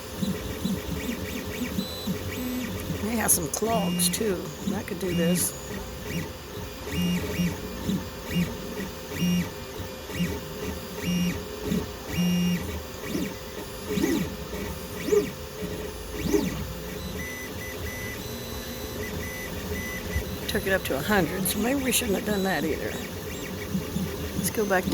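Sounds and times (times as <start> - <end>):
motor whines rising and falling: 0.0 - 24.9
stepper motors buzzing: 0.0 - 24.9
steady hum: 2.4 - 6.1, 19.6 - 24.9.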